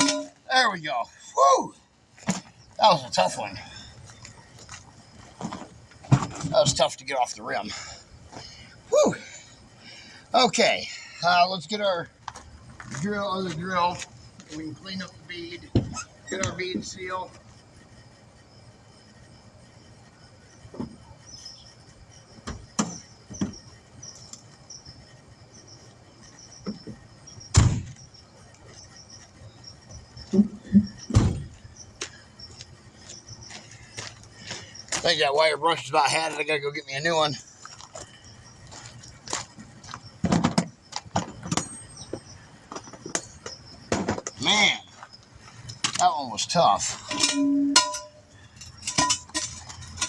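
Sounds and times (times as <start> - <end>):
tools knocking and clunking: 0.0 - 0.5, 46.8 - 50.0.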